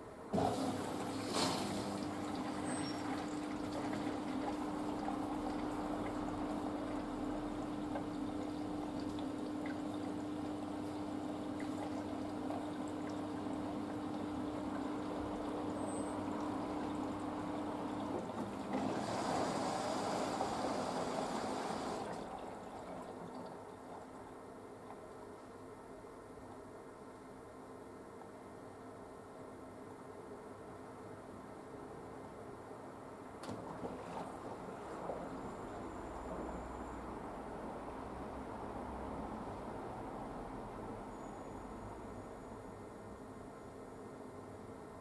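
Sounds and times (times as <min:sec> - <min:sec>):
water trickling in washing machine: 0:00.3 - 0:26.7, 0:33.4 - 0:42.2
rush of water: 0:00.4 - 0:06.7, 0:17.9 - 0:23.4.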